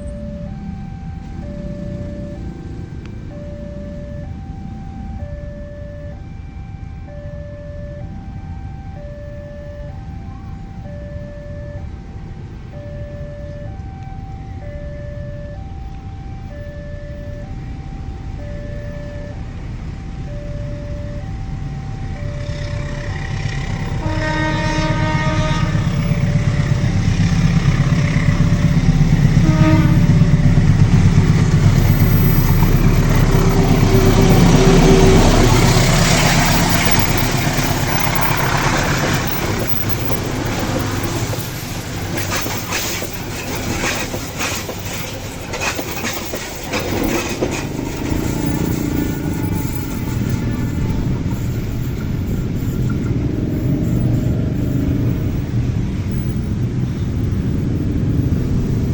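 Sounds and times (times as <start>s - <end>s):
train rumbling past: 0.0s - 7.3s, 8.0s - 58.9s
two-tone level-crossing alarm: 0.0s - 58.9s
train horn: 21.6s - 55.5s
wheels clicking over rail joints: 22.3s - 58.9s.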